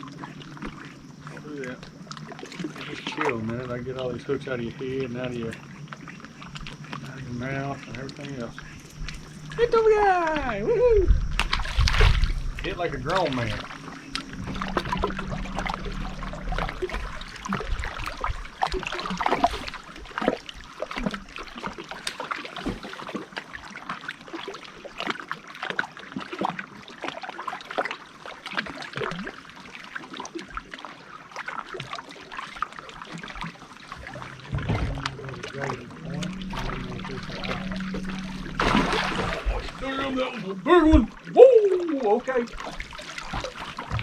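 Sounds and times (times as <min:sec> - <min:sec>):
low steady hum: 0:00.0 - 0:22.1, 0:33.4 - 0:44.0
water trickling and splashing: 0:00.0 - 0:44.0.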